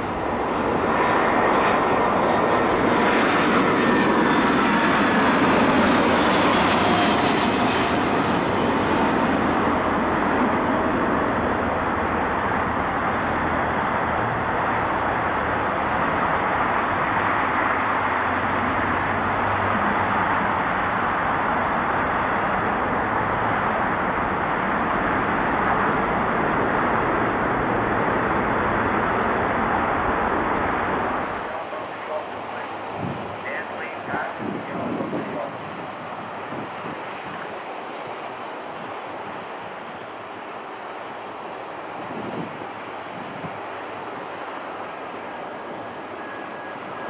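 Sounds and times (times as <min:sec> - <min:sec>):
jet engine roar: 0:00.0 - 0:47.0
jet engine whine falling in pitch: 0:00.3 - 0:10.8, 0:45.4 - 0:47.0.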